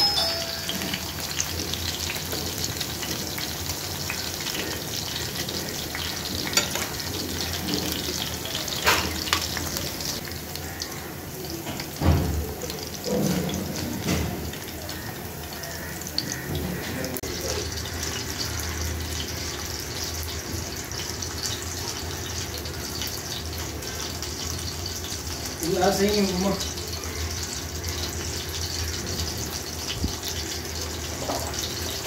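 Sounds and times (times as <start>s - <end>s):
food sizzling in oil: 0.0s - 32.0s
metal tongs clinking on pan: 6.5s - 7.9s, 8.7s - 9.9s.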